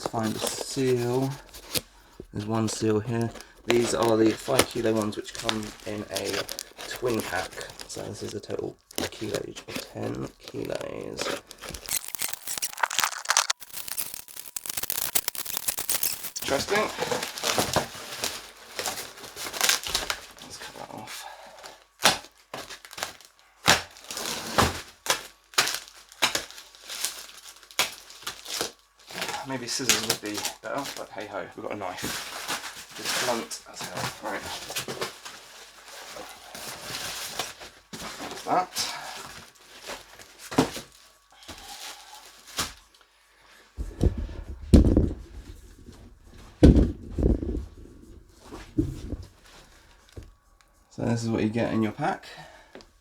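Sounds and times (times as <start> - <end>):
cardboard packaging pulled open: 0.0 - 20.4
knife sawing through plastic: 0.0 - 20.6
plastic crinkling: 0.0 - 21.0, 21.6 - 43.1
sharp plastic cracks and snaps: 3.1 - 17.9, 25.0 - 28.8
sharp clicks: 11.9 - 16.5
heavy thuds and rustling: 43.8 - 50.4.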